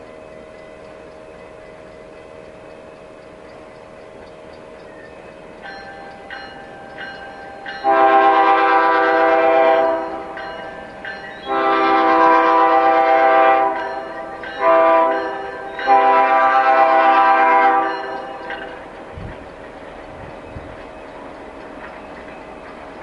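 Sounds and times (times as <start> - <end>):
faint regular clicks and tones: 0.0 - 7.9
locomotive air horn blasts: 7.8 - 10.4, 11.5 - 18.4.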